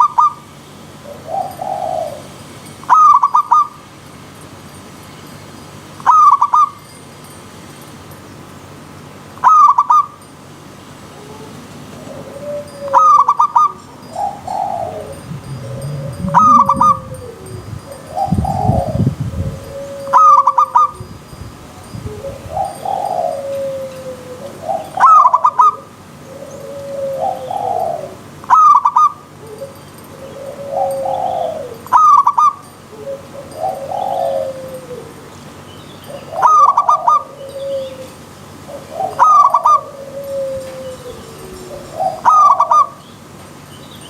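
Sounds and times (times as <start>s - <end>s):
dove stuttering call: 12.0s - 21.0s, 36.1s - 38.1s, 38.7s - 43.0s
soft low coos: 14.4s - 20.5s.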